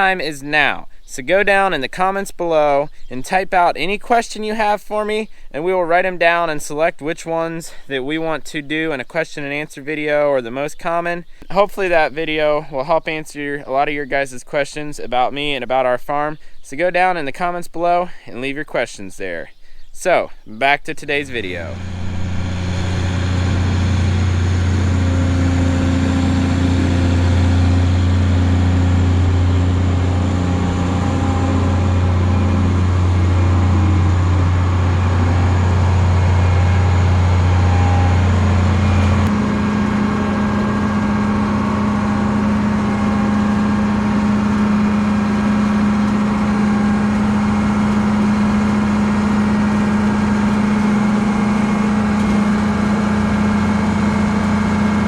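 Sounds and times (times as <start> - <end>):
diesel engine running: 21.2 - 55.0.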